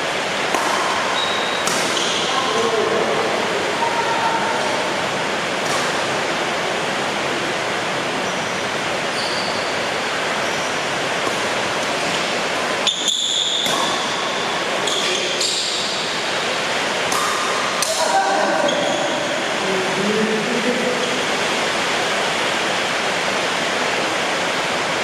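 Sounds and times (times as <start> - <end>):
short high squeaks: 1.2 - 2.3, 9.1 - 9.8, 12.8 - 13.7, 14.8 - 15.9.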